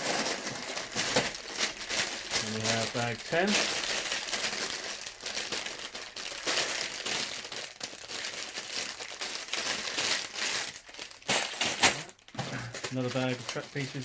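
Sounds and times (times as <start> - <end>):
plastic bags crinkling: 0.0 - 14.0.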